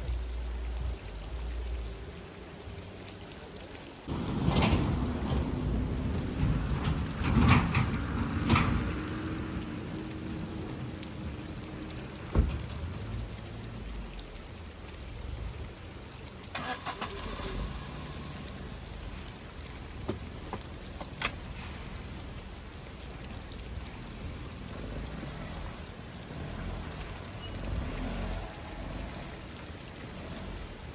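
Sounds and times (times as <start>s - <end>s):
car door shutting: 12.3s - 12.8s.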